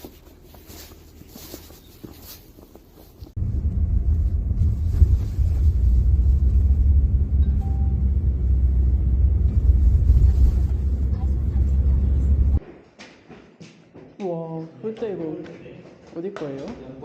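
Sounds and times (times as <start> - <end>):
vehicle engine rumbling: 0.0 - 12.6.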